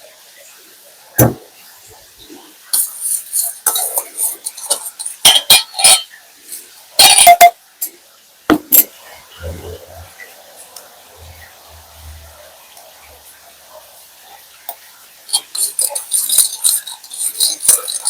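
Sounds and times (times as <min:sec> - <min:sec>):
dishes and utensils clattering: 0:01.2 - 0:01.5, 0:02.7 - 0:06.2, 0:07.0 - 0:10.1, 0:15.3 - 0:18.0.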